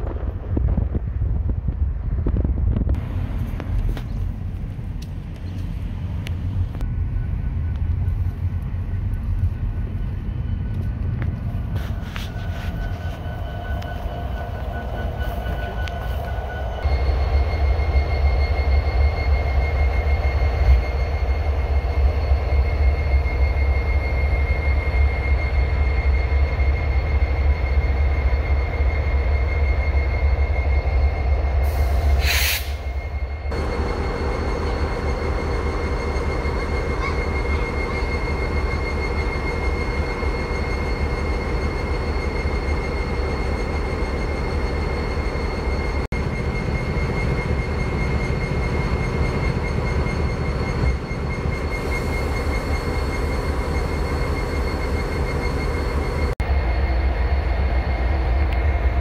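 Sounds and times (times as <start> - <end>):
diesel train rumble: 0.0 - 59.0
steady whine: 0.0 - 59.0
brief hiss: 31.7 - 32.9.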